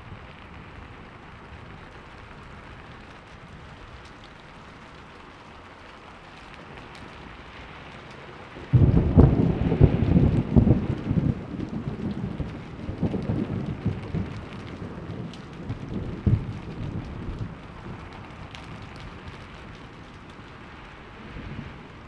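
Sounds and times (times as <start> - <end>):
steady rain: 0.0 - 22.0
thunder rumbling: 8.4 - 22.0
sharp thunder cracks: 8.7 - 14.4.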